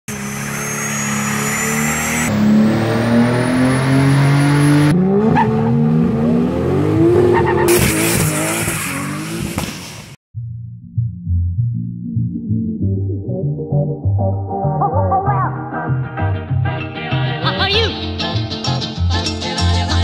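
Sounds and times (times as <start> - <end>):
car engine at high revs: 0.1 - 10.2.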